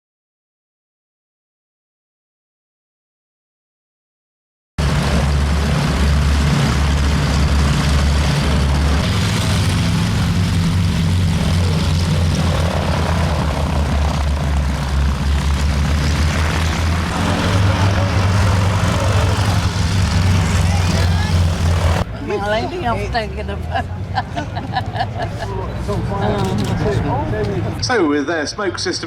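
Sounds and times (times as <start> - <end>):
biplane engine running: 4.8 - 24.1.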